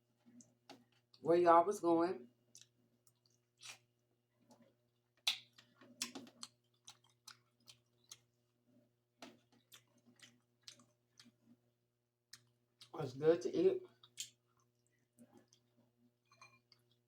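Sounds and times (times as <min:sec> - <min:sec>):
person chewing with mouth clicks: 0:02.5 - 0:03.9, 0:05.2 - 0:08.3, 0:09.6 - 0:11.5, 0:14.0 - 0:15.7.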